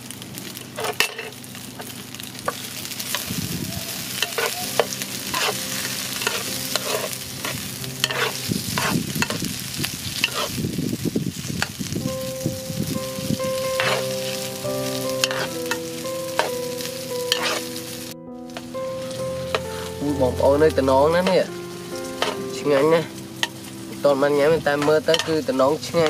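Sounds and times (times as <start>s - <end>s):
sausages sizzling in hot oil: 0.0s - 26.0s
metal spatula scraping enamel pan: 4.2s - 5.6s, 6.2s - 9.4s, 10.2s - 10.6s, 13.8s - 14.1s, 15.2s - 15.5s, 17.3s - 17.6s, 22.2s - 23.6s, 24.7s - 26.0s.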